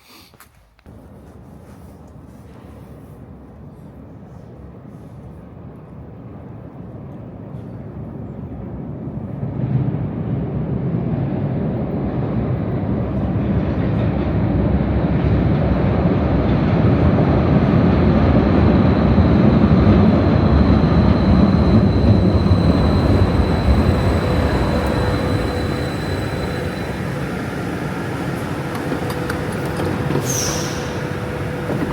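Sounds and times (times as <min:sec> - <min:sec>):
loud vehicle rumble: 0:13.4 - 0:31.9
faint high whine: 0:18.3 - 0:31.9.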